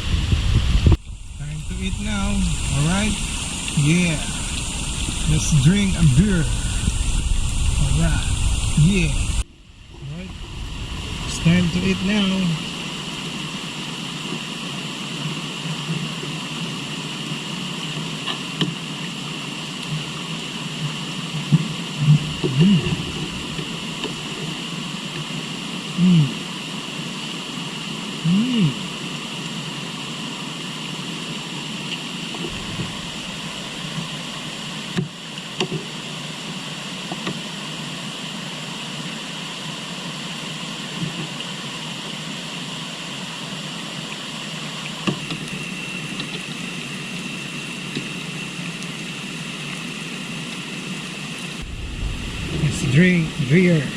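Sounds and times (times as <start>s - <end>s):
short low-pitched sounds: 0.0s - 13.7s, 22.0s - 24.4s, 32.5s - 34.7s, 51.6s - 53.9s
river water flowing: 1.0s - 28.2s, 28.8s - 53.9s.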